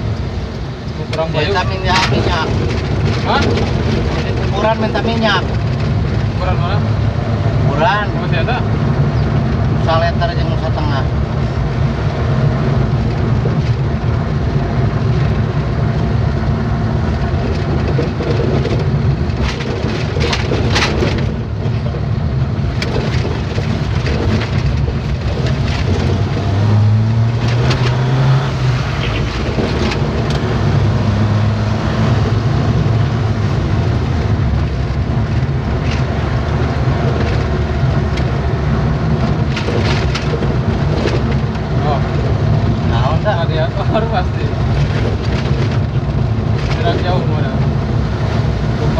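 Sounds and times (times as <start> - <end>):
road noise: 0.0 - 48.9
truck engine rumble: 0.0 - 48.9
knocks and rattles: 1.1 - 6.8, 17.1 - 31.5, 34.1 - 47.8.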